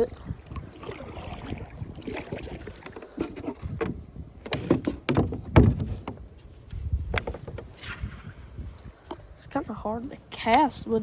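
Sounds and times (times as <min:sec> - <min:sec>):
knocks and thumps against kayak: 0:00.7 - 0:08.3.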